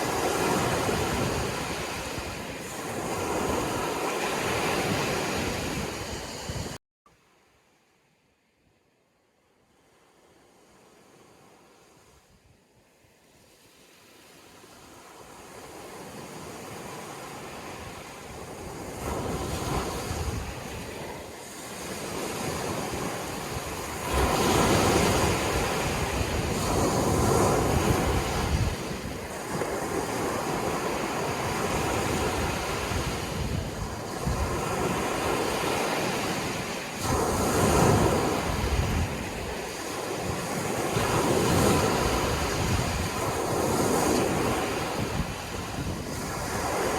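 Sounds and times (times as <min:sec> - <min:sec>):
sea waves washing onto shore: 0:00.0 - 0:06.8, 0:13.3 - 0:46.9.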